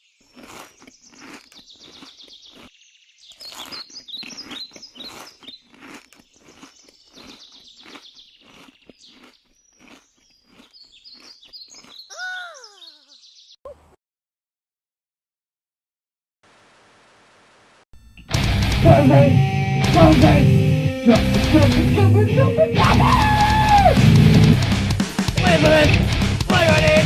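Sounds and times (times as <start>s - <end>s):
birds chirping: 0.0s - 13.9s
crunching clicks: 0.2s - 2.7s, 3.3s - 12.0s.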